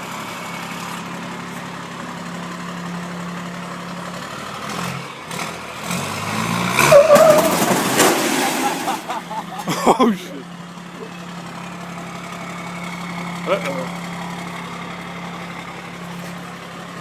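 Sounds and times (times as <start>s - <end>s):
truck engine idling and revving: 0.0s - 17.0s
chain screeching: 6.8s - 7.7s.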